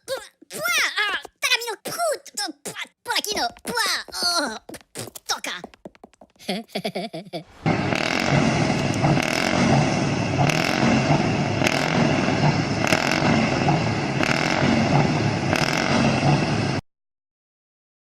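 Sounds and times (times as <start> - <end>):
truck engine running: 7.5 - 16.8.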